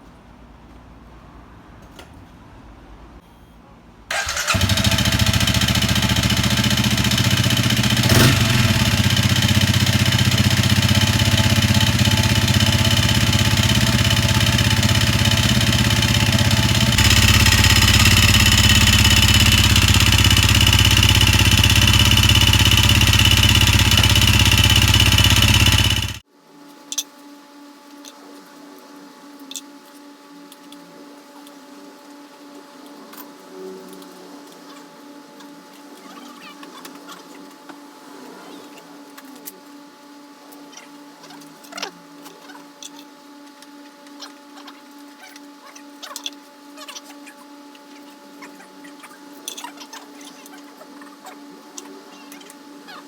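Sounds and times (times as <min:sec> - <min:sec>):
abnormal mechanical engine noise: 0:04.1 - 0:26.2
motorcycle engine running: 0:04.1 - 0:26.2.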